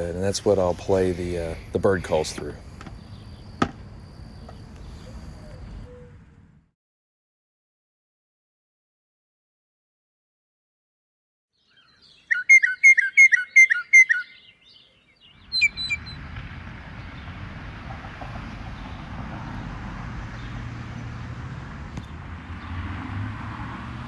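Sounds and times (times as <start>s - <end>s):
low outdoor rumble: 0.0s - 6.7s
bird whistling: 4.4s - 6.2s, 11.7s - 16.2s.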